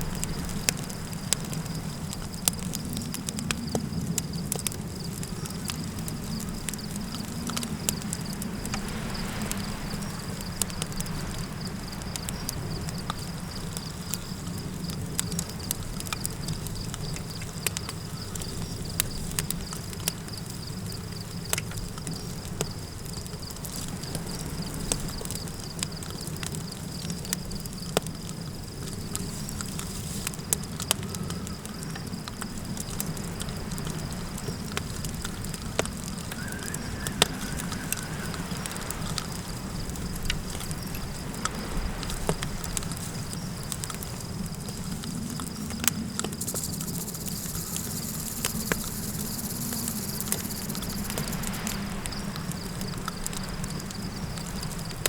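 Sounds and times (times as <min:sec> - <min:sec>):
low wind rumble: 0:00.0 - 0:27.7, 0:30.4 - 0:55.0
campfire crackling and popping: 0:00.0 - 0:55.0
crickets trilling: 0:00.0 - 0:55.0
high hiss: 0:35.9 - 0:55.0.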